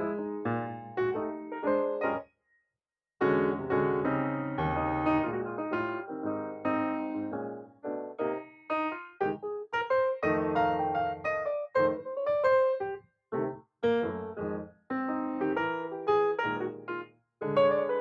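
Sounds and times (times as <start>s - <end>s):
background piano music: 0.0s - 2.2s, 3.2s - 18.0s.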